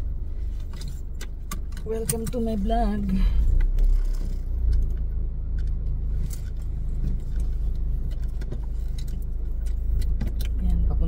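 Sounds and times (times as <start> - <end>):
car engine rumble: 0.0 - 11.0
light clicks and rattles: 0.6 - 11.0.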